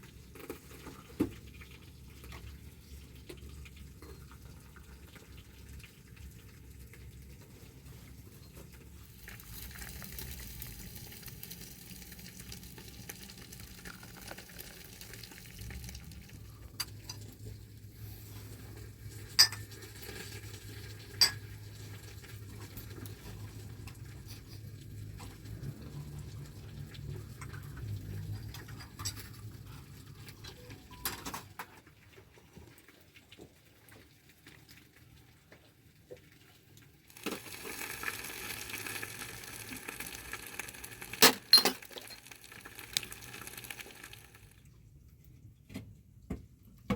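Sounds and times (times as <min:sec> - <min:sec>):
utensil clinking against metal pot: 0:19.3 - 0:19.8, 0:21.1 - 0:21.5, 0:41.2 - 0:42.3.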